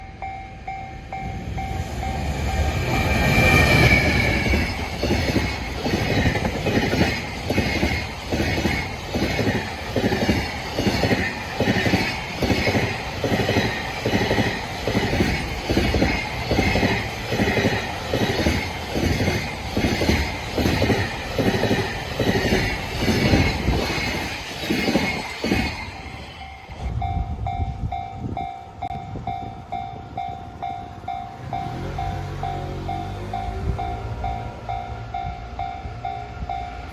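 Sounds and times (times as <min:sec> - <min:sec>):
level crossing warning bell: 0:00.0 - 0:03.0, 0:25.8 - 0:36.9
train rushing past: 0:00.0 - 0:36.9
wheels clacking over rail joints: 0:01.4 - 0:26.9.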